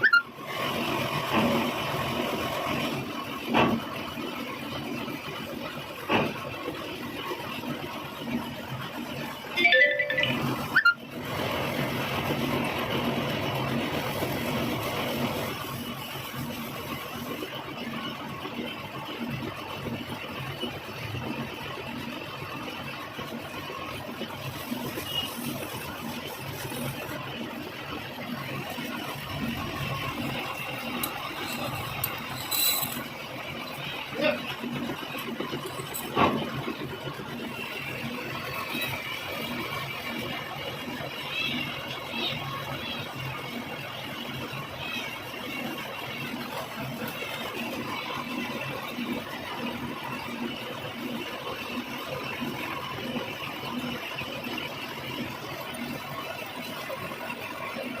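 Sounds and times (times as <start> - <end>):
metal lathe running: 21.6 - 40.3.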